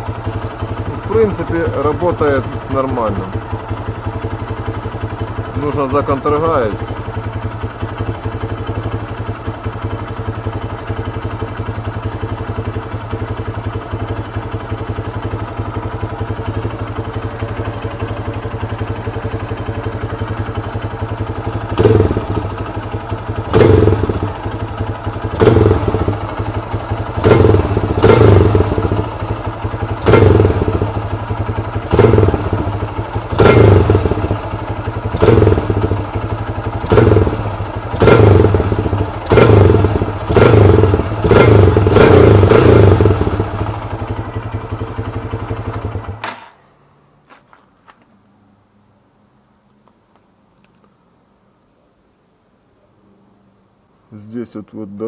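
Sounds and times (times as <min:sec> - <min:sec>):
motorcycle engine idling and revving: 0:00.0 - 0:49.4.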